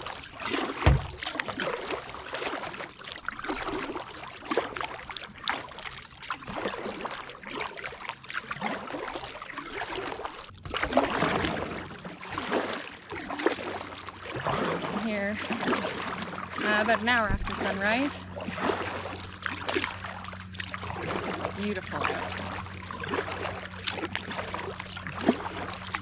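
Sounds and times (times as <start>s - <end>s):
kayak paddle splashing: 0.0s - 26.0s
low knock: 0.9s - 1.2s.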